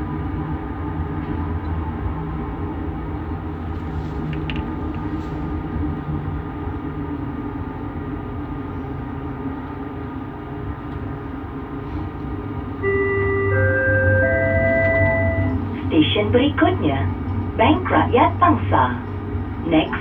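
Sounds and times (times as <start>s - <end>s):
train rolling rumble: 0.0s - 20.0s.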